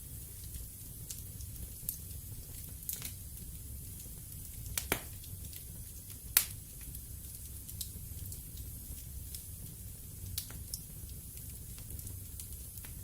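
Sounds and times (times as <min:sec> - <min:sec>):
wood fire crackling: 0:00.0 - 0:13.0
sharp pops of burning wood: 0:04.8 - 0:05.2.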